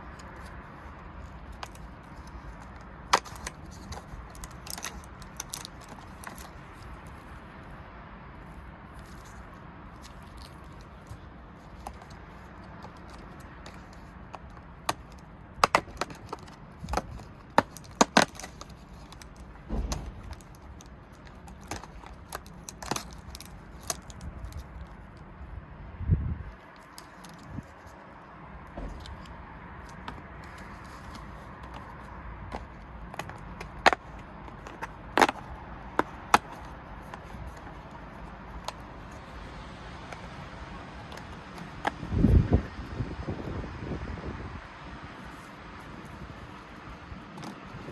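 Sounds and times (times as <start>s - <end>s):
plastic pieces clicking: 1.2s - 7.2s, 10.0s - 25.0s, 29.0s - 39.4s
dull thump: 19.6s - 20.9s, 28.7s - 31.3s.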